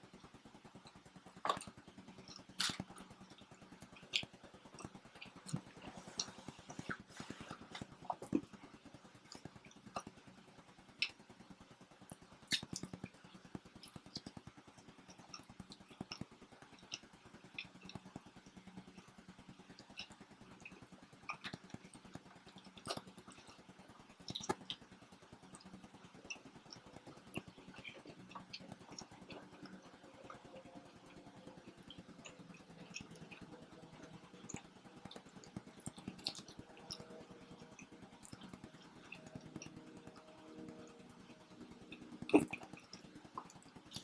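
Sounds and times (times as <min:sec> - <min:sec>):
faint low hum: 0:00.0 - 0:44.0
people chewing: 0:01.4 - 0:03.1, 0:03.9 - 0:08.7, 0:19.8 - 0:23.6, 0:26.1 - 0:44.0.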